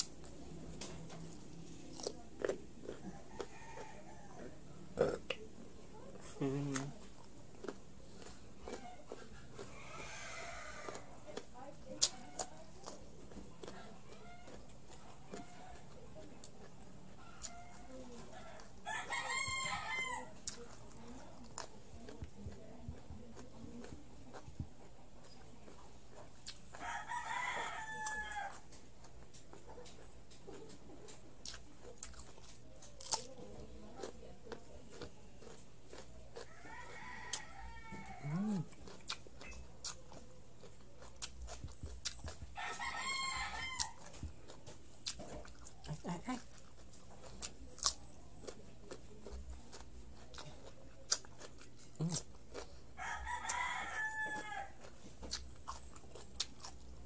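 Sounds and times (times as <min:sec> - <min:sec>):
cucumber crunching and chewing: 0:00.0 - 0:57.0
rooster crowing: 0:09.7 - 0:11.0, 0:17.3 - 0:20.3, 0:26.8 - 0:28.6, 0:36.5 - 0:38.6, 0:42.6 - 0:44.1, 0:53.0 - 0:54.9.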